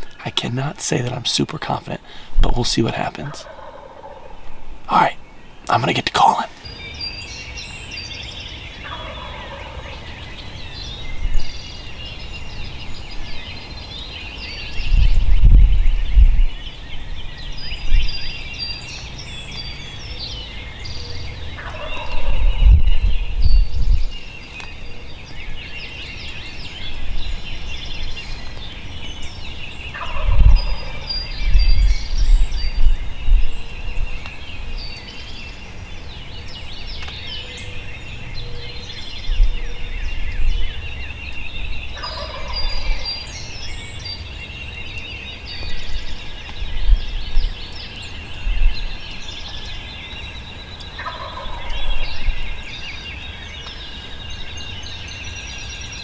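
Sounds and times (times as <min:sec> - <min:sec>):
songbirds chorus: 0:00.0 - 0:56.0
turkey gobbling: 0:03.3 - 0:04.4, 0:08.9 - 0:10.0, 0:42.0 - 0:43.0.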